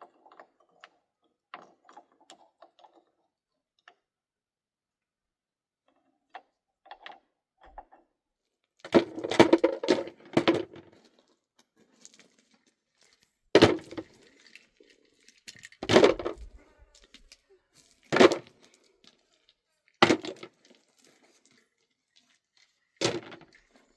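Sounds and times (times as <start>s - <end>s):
hard objects knocking and clattering: 8.9s - 11.0s, 13.6s - 14.2s, 15.6s - 16.6s, 18.1s - 18.6s, 20.0s - 20.5s.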